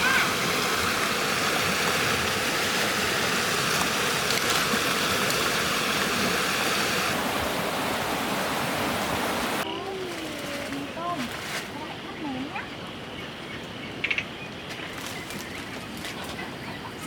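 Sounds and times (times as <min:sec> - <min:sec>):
floodwater rushing: 0:00.0 - 0:12.6.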